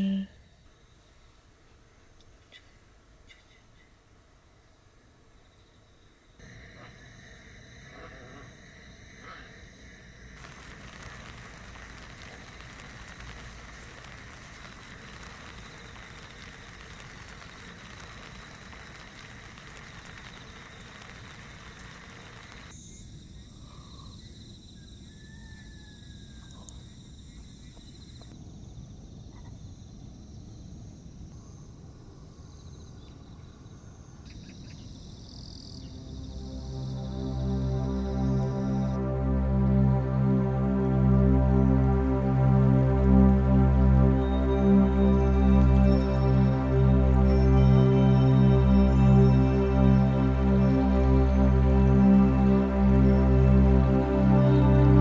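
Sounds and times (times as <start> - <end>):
insects trilling: 5.4 - 39.0
steady hiss: 6.4 - 22.8.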